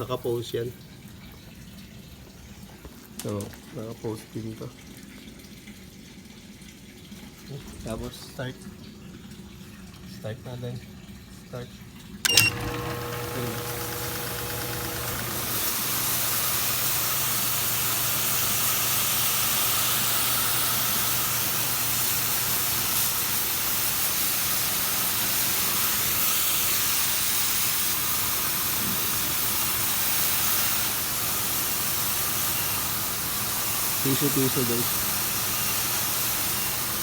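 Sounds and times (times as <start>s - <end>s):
power washer water jet hissing: 12.3s - 37.0s.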